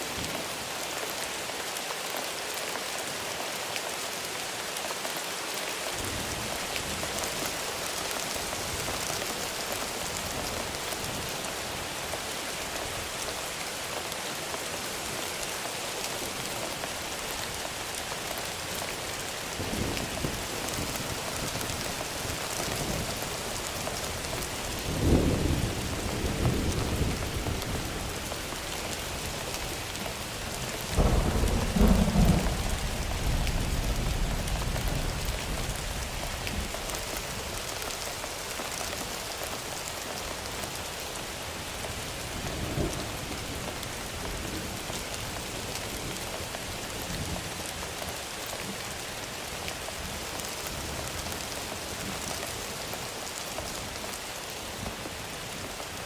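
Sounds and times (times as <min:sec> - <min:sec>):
heavy rain: 0:00.0 - 0:56.0
thunder rolling: 0:31.0 - 0:35.7.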